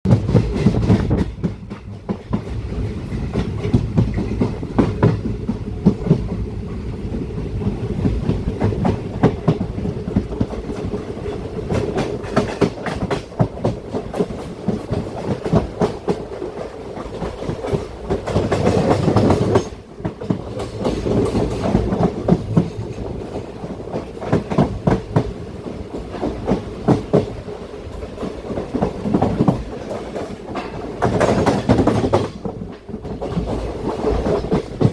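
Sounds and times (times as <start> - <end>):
wheels clattering over rail joints: 7.6 - 34.9.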